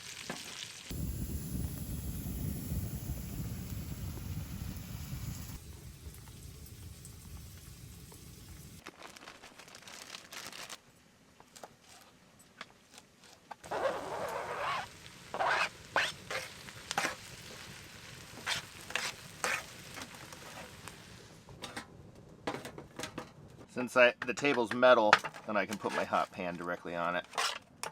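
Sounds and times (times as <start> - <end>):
food sizzling in a hot pan: 0.0 - 8.8, 13.7 - 21.4
loud hissing: 0.9 - 8.8
sharp scraping strokes: 13.7 - 17.2, 18.4 - 19.7.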